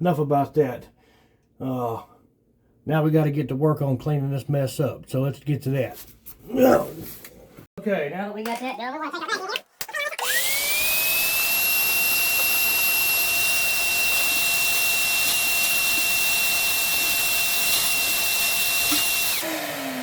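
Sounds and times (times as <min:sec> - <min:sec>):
electric motor whining: 0:10.2 - 0:20.0.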